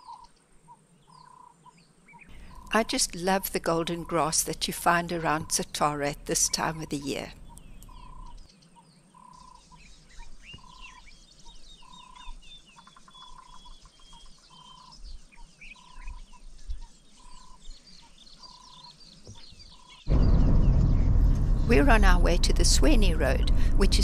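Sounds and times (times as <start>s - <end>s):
birds chirping and twittering: 0.0s - 24.0s
vehicle noise: 2.3s - 8.4s, 20.1s - 24.0s
wind noise: 20.1s - 24.0s.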